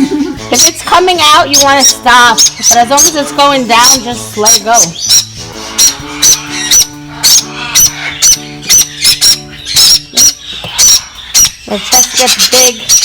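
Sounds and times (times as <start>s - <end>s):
baby parrots squawking: 0.1s - 13.0s.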